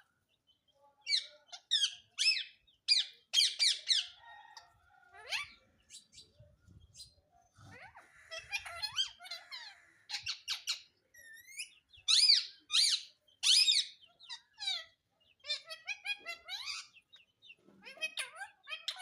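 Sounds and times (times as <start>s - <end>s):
parrot squeaky chirps: 1.1s - 4.2s, 7.7s - 17.1s, 17.8s - 19.0s.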